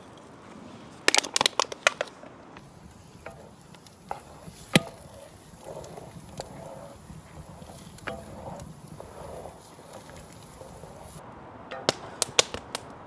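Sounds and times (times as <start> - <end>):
faint steady hiss: 2.6 - 13.0.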